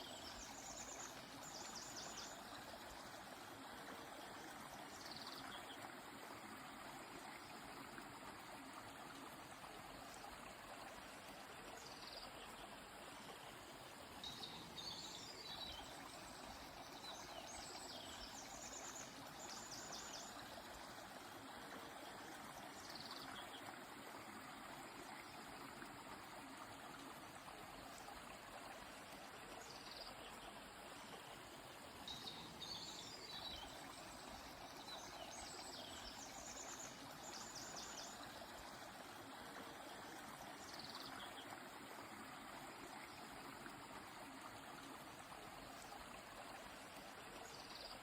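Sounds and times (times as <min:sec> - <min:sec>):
river flowing: 0:00.0 - 0:48.0
songbirds calling: 0:32.0 - 0:38.6.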